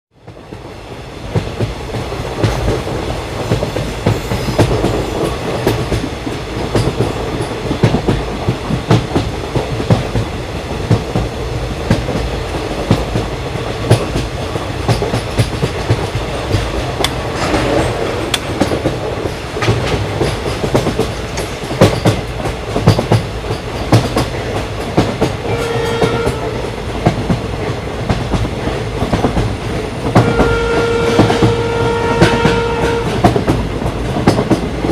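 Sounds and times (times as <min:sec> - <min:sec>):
train running with wheels clicking: 0:00.1 - 0:34.9
train horn: 0:25.4 - 0:26.8, 0:30.1 - 0:33.3.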